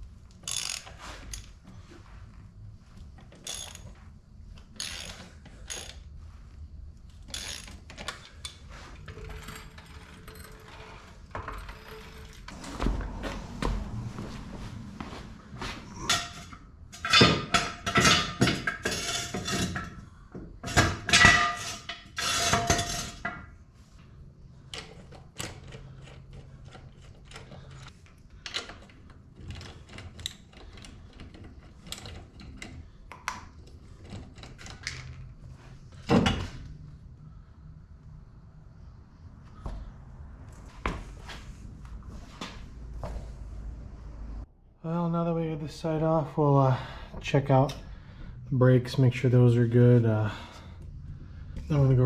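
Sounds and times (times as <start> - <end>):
metal tools clanking: 7.3 - 13.6, 15.6 - 20.0.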